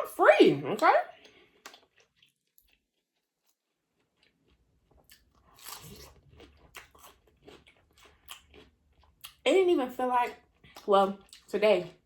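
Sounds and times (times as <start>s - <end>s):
crunchy chewing: 1.1s - 9.4s.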